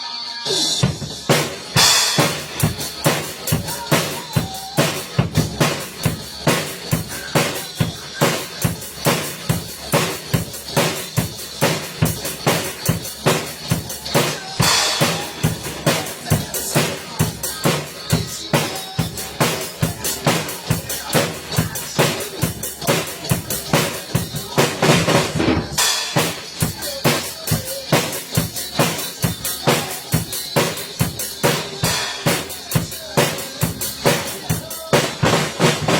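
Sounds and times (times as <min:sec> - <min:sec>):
drum kit beat: 0:00.3 - 0:35.9.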